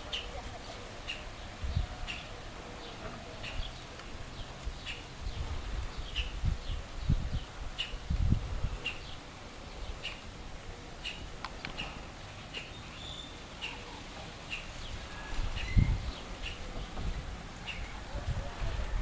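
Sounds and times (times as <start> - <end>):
small bird chirping: 2.9 - 8.0, 8.8 - 10.3, 11.0 - 16.9.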